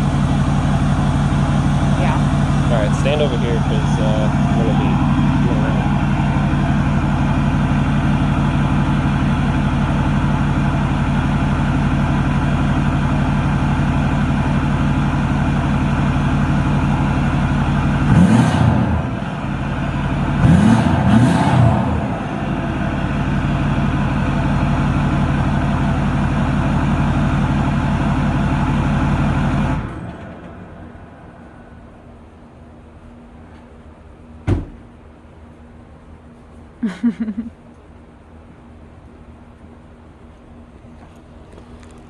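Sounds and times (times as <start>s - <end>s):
diesel engine idling: 0.0s - 42.0s
engine revving: 1.0s - 10.3s, 16.9s - 25.2s.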